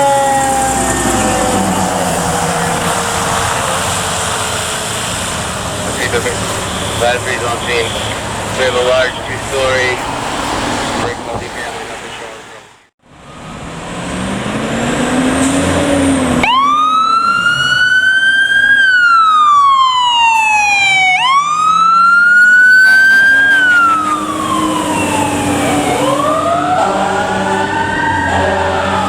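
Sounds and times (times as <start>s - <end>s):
electronic siren wailing: 0.0s - 4.3s, 16.4s - 29.0s
lower siren tone: 0.0s - 4.4s, 16.3s - 29.0s
second siren winding up: 16.4s - 29.0s.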